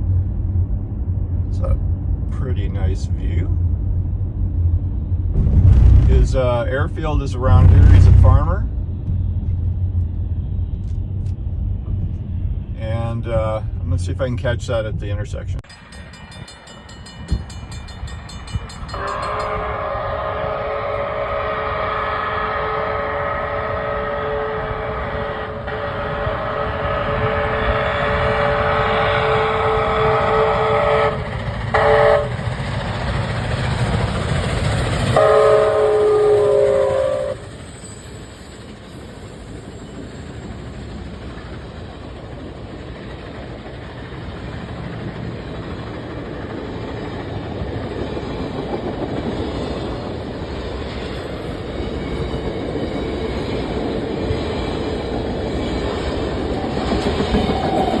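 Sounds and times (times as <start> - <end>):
train rumbling and clattering past: 0.0 - 58.0
steam locomotive whistle blasts: 18.9 - 32.4, 35.1 - 38.4.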